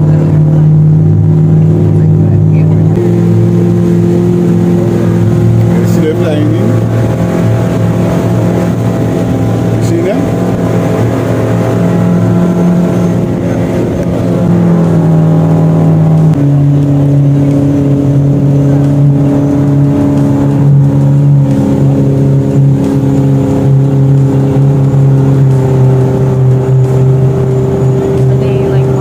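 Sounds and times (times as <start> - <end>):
outboard motor running: 0.0 - 29.0.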